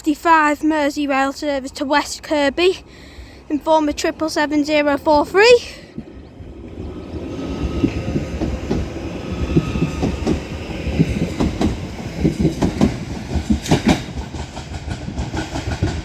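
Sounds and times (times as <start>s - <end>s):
train wheels clacking over joints: 7.1s - 16.0s.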